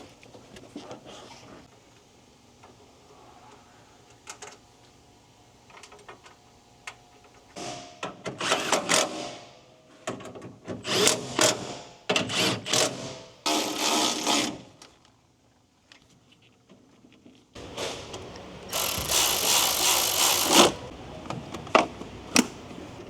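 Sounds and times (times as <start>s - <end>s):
cordless drill running: 18.4s - 20.9s.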